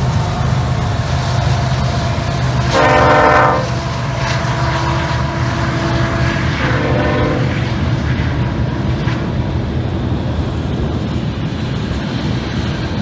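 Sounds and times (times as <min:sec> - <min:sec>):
freight locomotives rumbling past: 0:00.0 - 0:13.0
locomotive horn blast: 0:02.6 - 0:03.8, 0:04.4 - 0:07.7.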